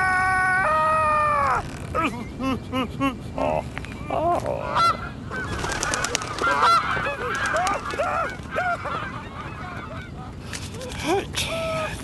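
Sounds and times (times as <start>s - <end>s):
geese honking: 4.7s - 10.4s.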